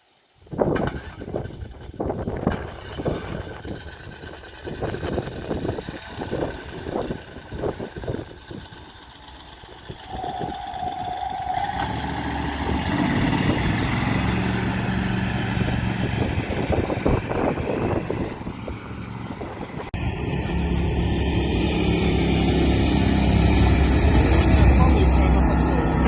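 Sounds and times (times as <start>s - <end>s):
petrol engine running: 0.8s - 26.0s
steady whine: 3.4s - 26.0s.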